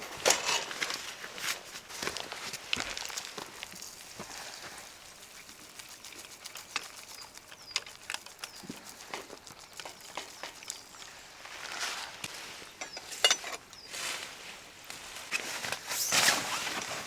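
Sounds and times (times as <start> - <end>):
fire popping and snapping: 0.0 - 11.3
campfire crackling: 0.0 - 12.9.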